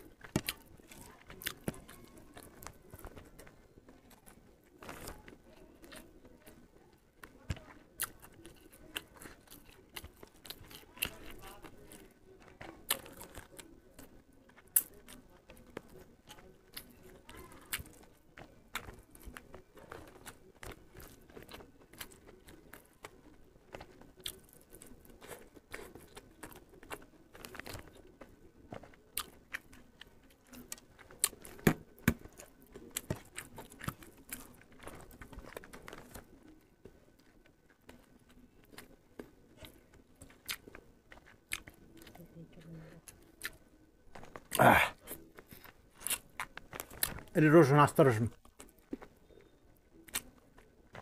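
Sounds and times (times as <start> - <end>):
person chewing and crunching food: 0.0 - 51.0.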